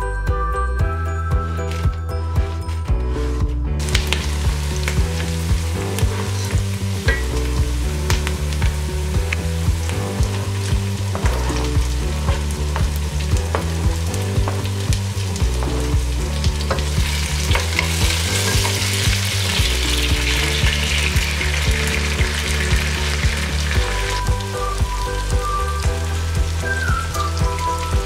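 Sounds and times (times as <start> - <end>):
background music with steady beat: 0.0 - 28.0
onions sizzling in hot oil: 3.8 - 28.0
wooden spoon stirring: 15.5 - 24.2.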